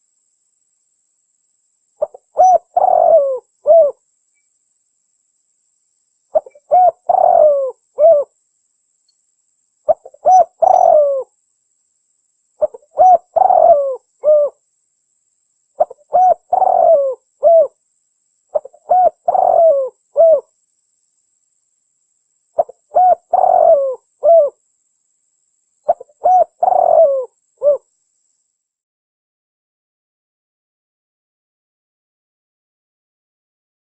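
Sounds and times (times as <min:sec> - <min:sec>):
dove cooing: 0:02.0 - 0:04.0, 0:06.4 - 0:08.3, 0:09.9 - 0:11.3, 0:12.6 - 0:14.6, 0:15.8 - 0:17.8, 0:18.5 - 0:20.5, 0:22.6 - 0:24.6, 0:25.9 - 0:27.9.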